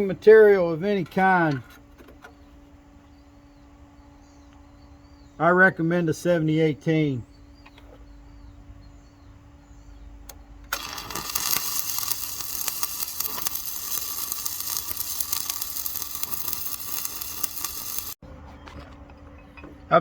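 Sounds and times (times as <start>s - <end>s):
welding arc crackling: 10.7s - 18.2s.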